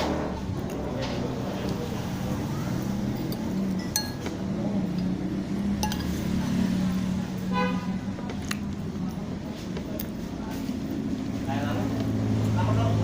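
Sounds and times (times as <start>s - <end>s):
utensils clinking against bowl: 3.0s - 6.4s.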